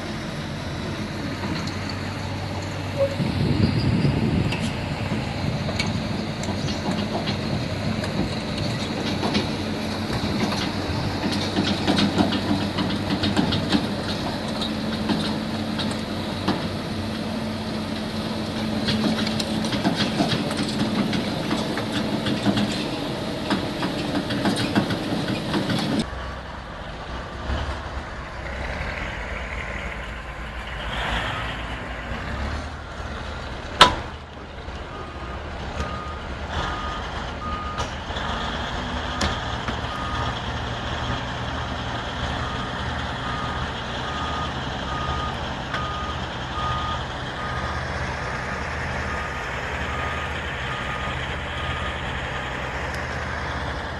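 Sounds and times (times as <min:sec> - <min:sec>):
diesel engine running: 0:00.0 - 0:53.9
metallic clanks and knocks: 0:03.6 - 0:16.8, 0:18.6 - 0:26.1.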